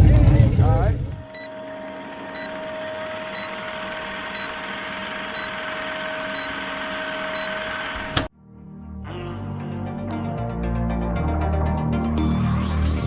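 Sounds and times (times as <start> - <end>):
mechanical hum: 0.0 - 8.3
music: 8.3 - 13.0.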